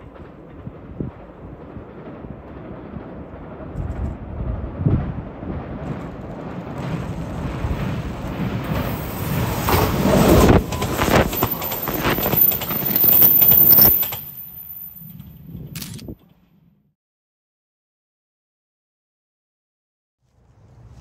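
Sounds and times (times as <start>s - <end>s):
electric train passing: 0.0s - 15.6s
wheels clacking over rail joints: 4.9s - 15.4s.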